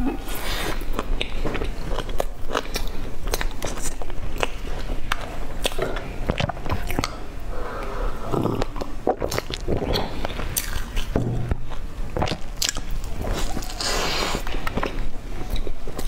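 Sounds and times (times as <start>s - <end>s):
crackling mouth clicks: 2.6s - 7.2s, 8.4s - 11.1s
biting and chewing soft bun: 8.4s - 16.0s.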